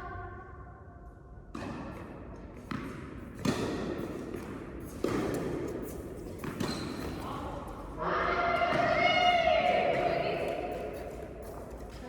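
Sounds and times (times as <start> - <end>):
tennis ball bouncing on court: 1.5 - 5.6, 6.4 - 7.2.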